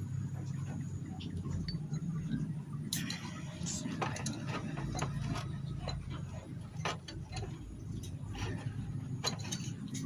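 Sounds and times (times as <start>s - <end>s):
steady low hum: 0.0s - 10.0s
light metallic clicks of tools: 2.9s - 10.0s.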